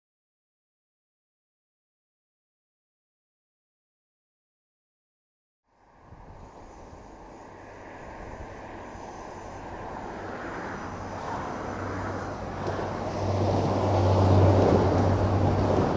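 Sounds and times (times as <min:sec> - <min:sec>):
train engine hum: 0:05.7 - 0:15.9
wheel-on-rail noise: 0:06.1 - 0:15.9.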